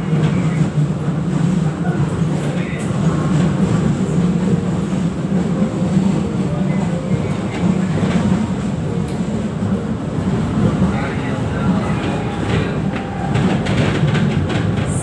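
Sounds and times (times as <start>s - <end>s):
train wheels rumbling: 0.0s - 15.0s
faint clicks from rails: 6.7s - 9.8s, 11.6s - 15.0s.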